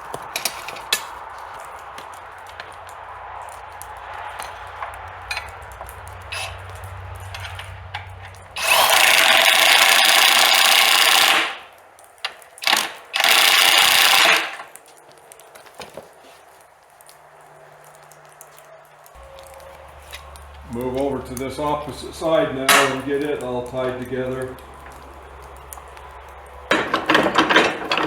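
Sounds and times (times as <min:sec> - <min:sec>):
electric drill boring wood: 0:08.6 - 0:11.7, 0:12.6 - 0:14.8
low steady hum: 0:17.2 - 0:28.0.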